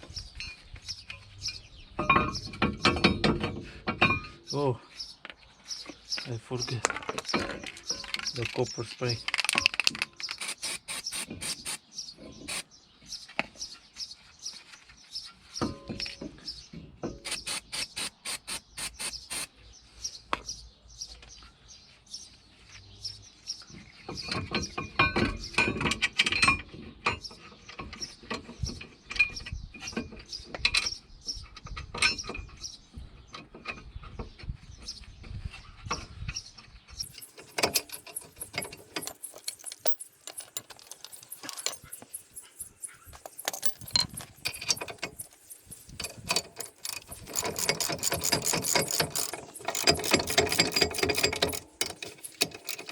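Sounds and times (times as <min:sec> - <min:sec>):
hand tools and metal parts clinking: 0:00.0 - 0:12.7, 0:14.8 - 0:19.5, 0:23.7 - 0:32.6, 0:37.0 - 0:52.9.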